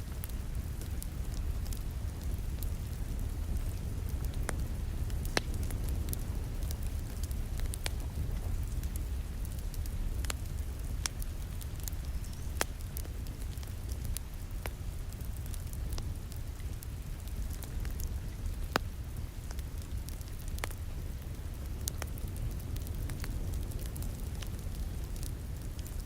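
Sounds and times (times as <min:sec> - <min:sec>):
fire pops: 0:00.0 - 0:26.0
wood fire crackling: 0:00.0 - 0:26.0.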